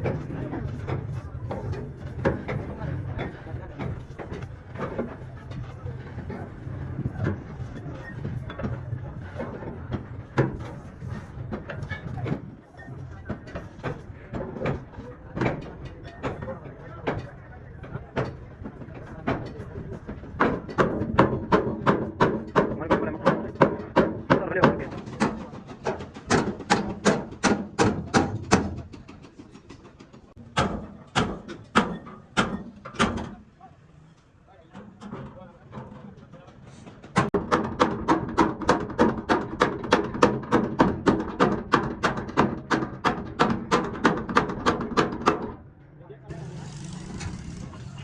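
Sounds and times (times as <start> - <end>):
knocks and taps on metal: 37.2 - 45.6.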